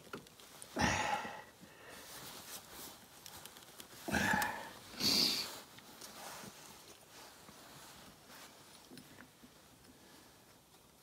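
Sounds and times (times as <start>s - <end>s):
person breathing heavily: 0.8s - 2.3s, 4.0s - 5.6s.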